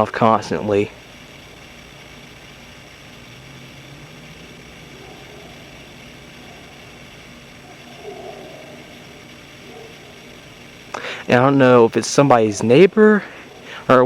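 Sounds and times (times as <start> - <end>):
recording hiss: 0.0 - 14.0
distant dog barking: 4.8 - 6.8, 7.6 - 10.4, 13.4 - 13.8.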